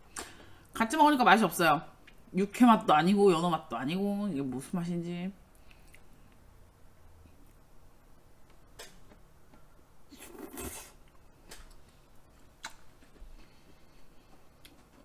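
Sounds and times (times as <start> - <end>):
person chewing: 10.1 - 13.6.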